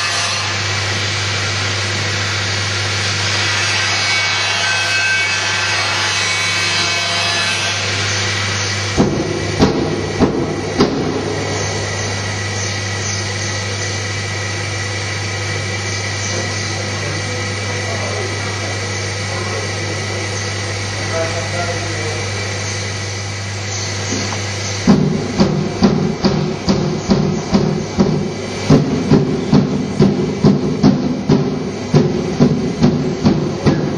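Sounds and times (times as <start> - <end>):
foam cutter machine hum: 0.0 - 33.9
sharp knocks: 8.9 - 11.5, 24.9 - 33.9.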